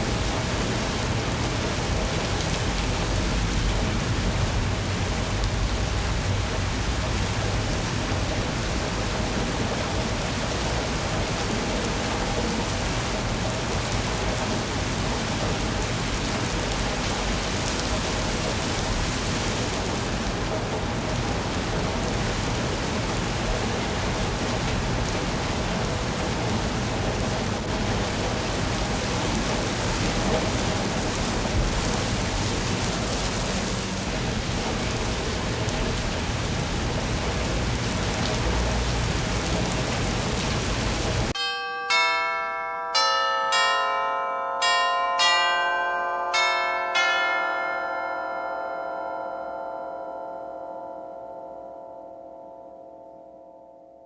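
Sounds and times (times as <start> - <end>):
rain on surfaces: 0.0 - 41.4.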